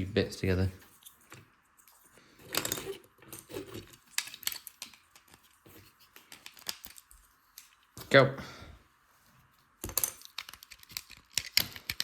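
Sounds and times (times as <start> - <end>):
plastic bricks clicking and rattling: 9.8 - 12.0.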